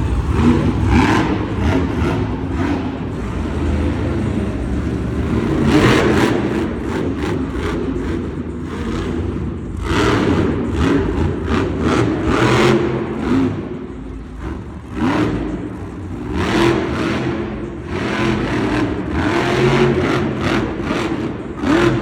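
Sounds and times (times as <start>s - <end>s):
truck engine revving hard: 0.0s - 22.0s.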